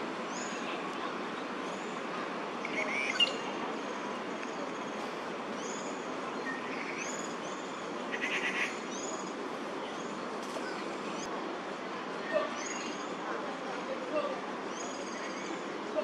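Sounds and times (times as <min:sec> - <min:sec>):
small birds chirping: 0:02.6 - 0:11.3.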